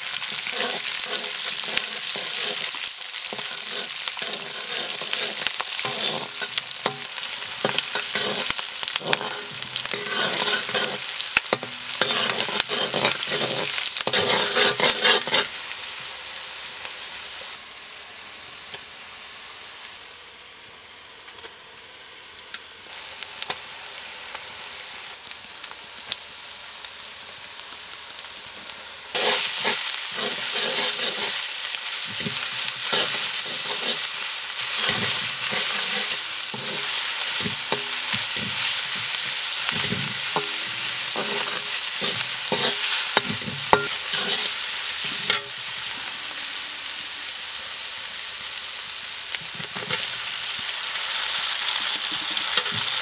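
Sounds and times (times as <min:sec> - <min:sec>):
onions sizzling in hot oil: 0:00.0 - 0:53.0
wooden spoon scraping a pan: 0:00.2 - 0:15.6, 0:29.2 - 0:45.5, 0:49.6 - 0:50.1.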